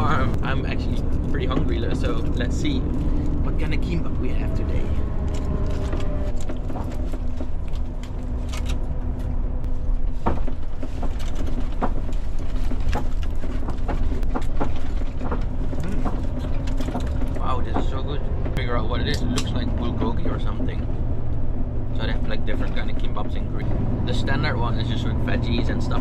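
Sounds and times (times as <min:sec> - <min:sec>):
bus rumbling in motion: 0:00.0 - 0:26.0.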